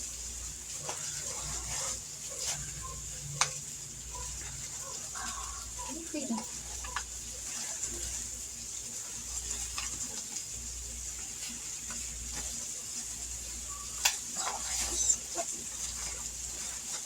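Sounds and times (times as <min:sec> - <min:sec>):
chicken sizzling in hot oil: 0:00.0 - 0:17.0
oil crackling and popping: 0:00.0 - 0:17.0.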